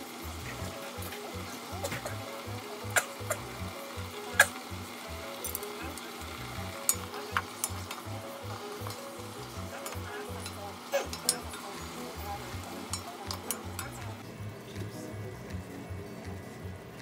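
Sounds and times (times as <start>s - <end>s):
cabbage sizzling in a pot: 0.0s - 14.4s
utensil clicking against pot: 2.8s - 3.5s, 4.3s - 4.6s, 6.8s - 8.1s, 9.8s - 11.7s, 12.8s - 14.1s.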